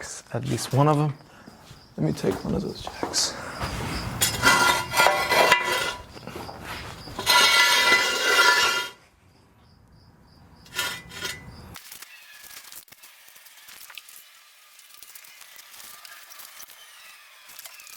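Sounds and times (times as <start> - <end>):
metal jack scraping across floor: 3.6 - 9.0, 10.7 - 11.7.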